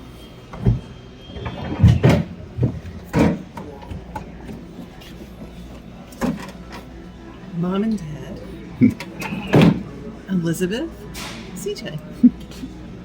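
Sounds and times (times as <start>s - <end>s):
knocks and thumps: 0.6s - 4.0s.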